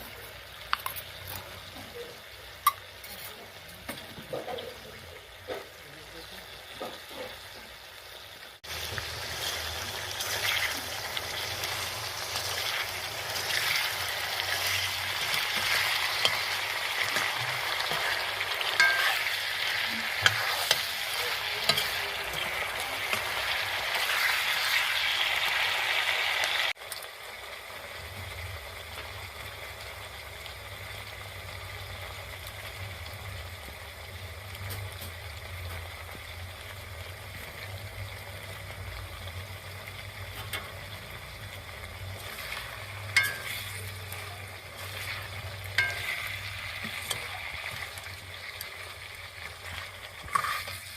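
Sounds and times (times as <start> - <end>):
food sizzling in oil: 0.0 - 50.9
stirring scrapes in pan: 9.3 - 24.8, 42.1 - 48.0, 49.7 - 50.9.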